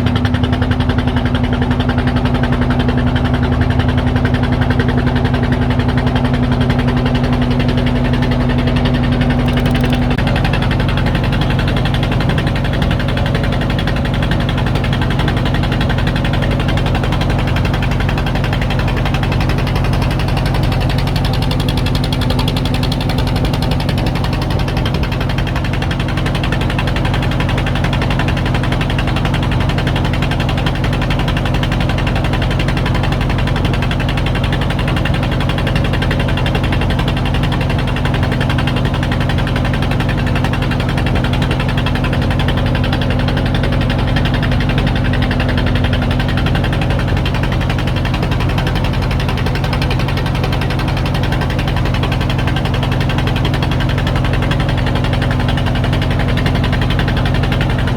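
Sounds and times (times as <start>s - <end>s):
engine running steadily: 0.0s - 57.9s
low hum: 8.5s - 10.8s.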